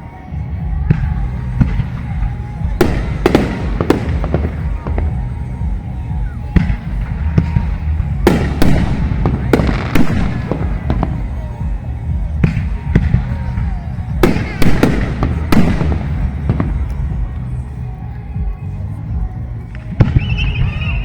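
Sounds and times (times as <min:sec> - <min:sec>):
bass-heavy music: 0:00.0 - 0:21.0
fireworks bursting with echo: 0:00.0 - 0:21.0.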